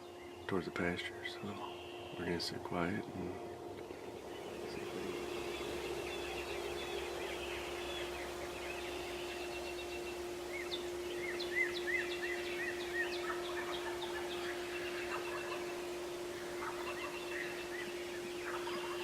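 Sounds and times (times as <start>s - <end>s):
bird singing repeated notes: 0.0s - 19.0s
steady low hum: 0.0s - 19.0s
turkeys gobbling: 10.5s - 19.0s.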